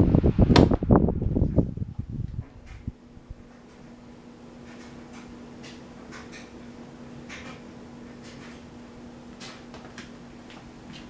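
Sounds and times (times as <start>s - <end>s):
fan motor hum: 0.0s - 11.0s.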